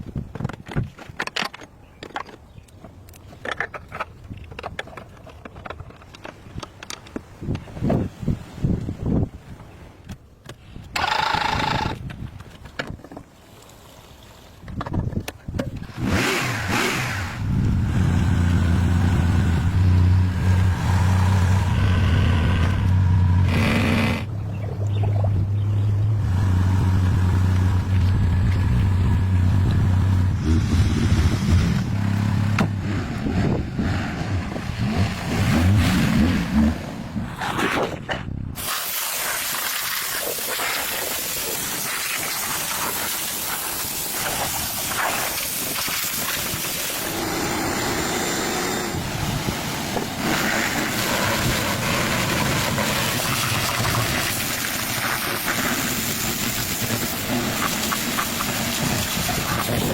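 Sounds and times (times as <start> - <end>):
motor humming: 16.7 - 30.4
steady hissing noise: 38.6 - 49.8.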